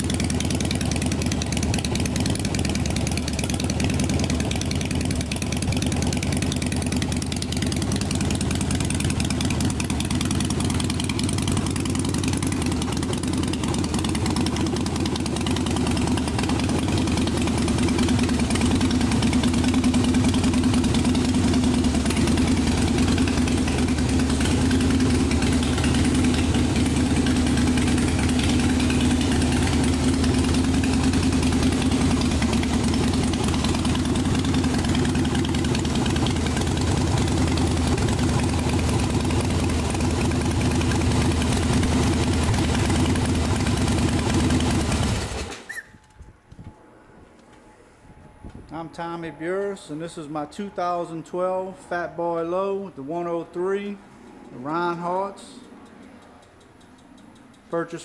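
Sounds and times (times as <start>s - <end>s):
motorcycle engine idling: 0.0s - 45.8s.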